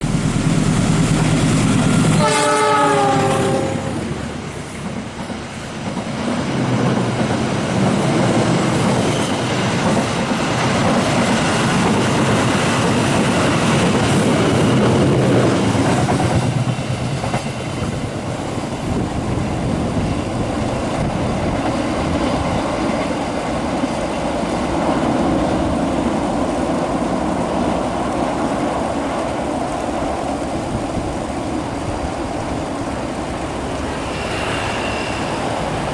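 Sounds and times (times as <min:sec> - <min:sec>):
train rumbling past: 0:00.0 - 0:35.9
locomotive horn blast: 0:02.0 - 0:04.2.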